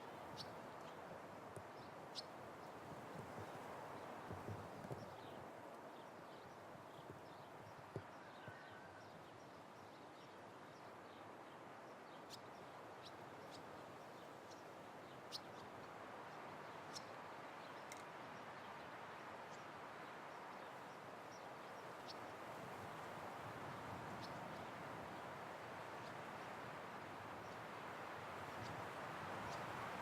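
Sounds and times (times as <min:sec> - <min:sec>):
wind: 0:00.0 - 0:30.0.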